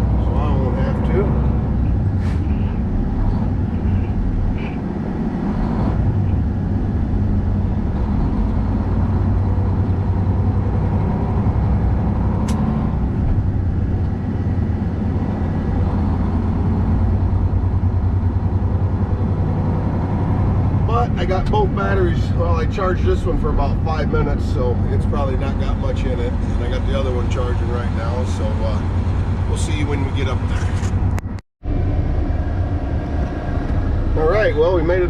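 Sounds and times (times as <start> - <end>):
truck engine droning: 0.0 - 35.0
sharp click: 12.4 - 12.7.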